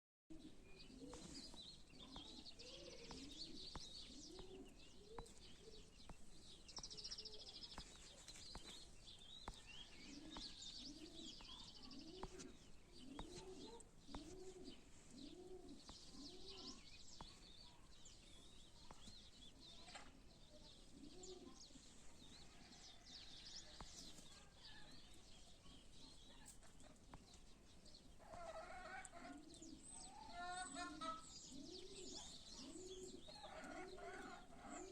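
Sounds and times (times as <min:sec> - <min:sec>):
doves cooing: 0:00.3 - 0:17.5, 0:26.2 - 0:34.9
small birds chirping: 0:00.3 - 0:34.9.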